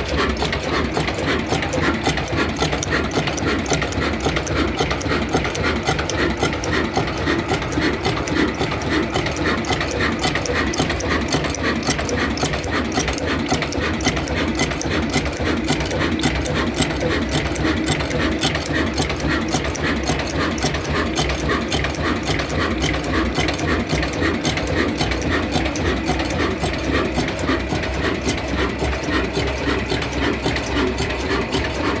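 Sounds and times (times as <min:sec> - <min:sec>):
diesel engine knocking: 0:00.0 - 0:32.0.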